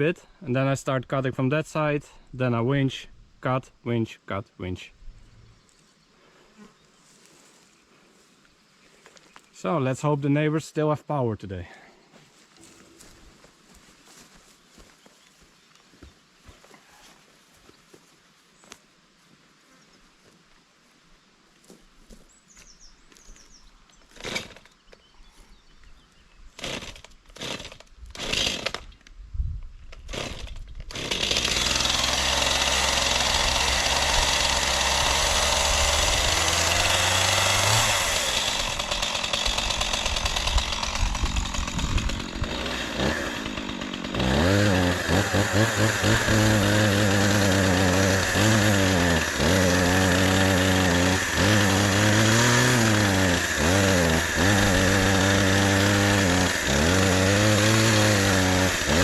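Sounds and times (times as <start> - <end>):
chainsaw cutting tree trunk: 24.1 - 24.7, 26.6 - 29.0, 29.9 - 59.0.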